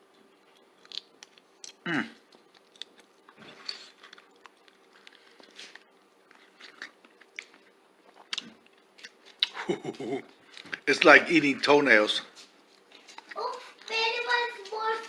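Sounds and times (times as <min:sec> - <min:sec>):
faint steady hum: 0:00.0 - 0:15.0
person chewing with crunches: 0:00.5 - 0:10.8, 0:12.4 - 0:13.9.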